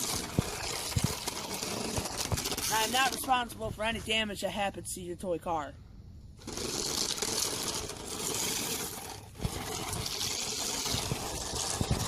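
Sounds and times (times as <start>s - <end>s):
toy car driving through mud: 0.0s - 3.5s, 6.4s - 12.0s.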